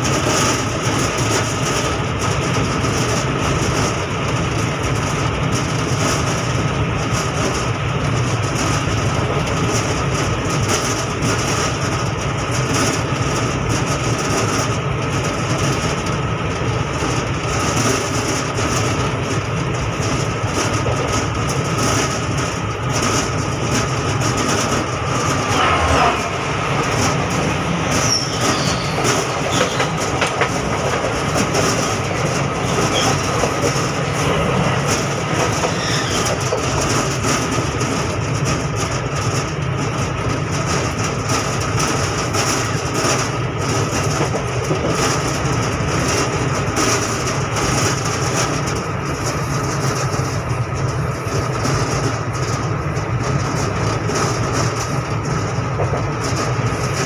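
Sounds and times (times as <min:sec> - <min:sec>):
train wheels rumbling on rails: 0:00.0 - 0:57.0
high squeal: 0:27.9 - 0:30.0, 0:35.6 - 0:36.3.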